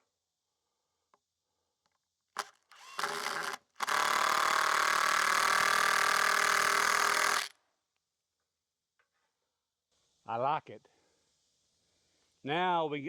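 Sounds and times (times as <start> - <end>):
power driver driving screw: 2.4 - 7.5.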